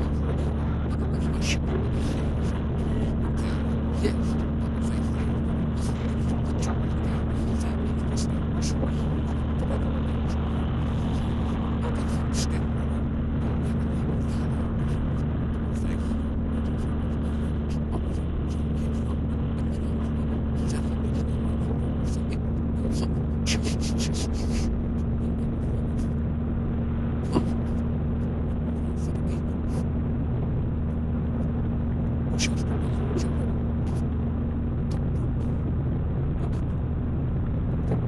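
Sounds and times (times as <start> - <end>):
car engine and road drone: 0.0 - 38.0.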